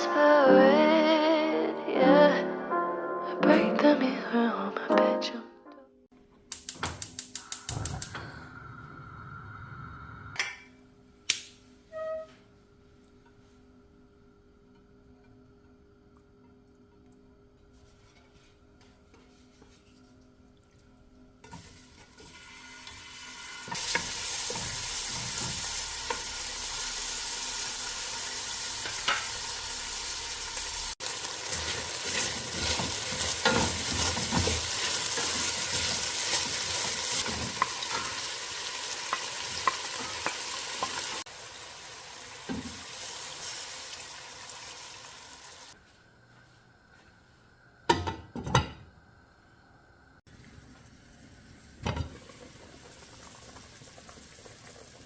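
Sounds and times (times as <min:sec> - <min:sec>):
food sizzling in a pan: 0:21.4 - 0:45.8, 0:50.3 - 0:55.0.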